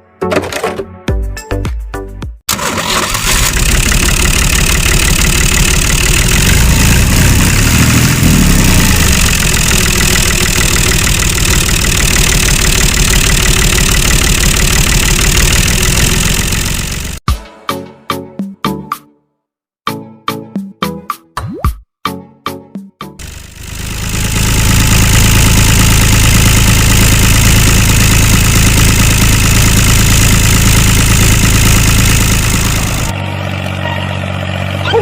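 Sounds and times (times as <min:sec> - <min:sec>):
small tractor engine running: 0:02.5 - 0:17.2, 0:23.2 - 0:35.0.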